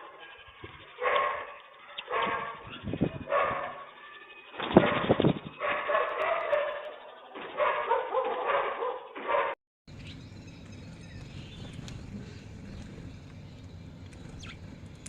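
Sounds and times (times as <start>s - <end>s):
faint high chirps: 0.0s - 7.4s
loud animal calls: 0.0s - 15.0s.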